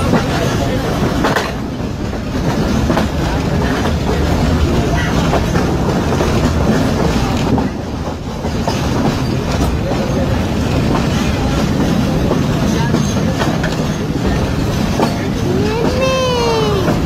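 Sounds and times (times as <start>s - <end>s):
train wheels rumbling on track: 0.0s - 17.0s
wheels clicking over rail joints: 0.0s - 17.0s.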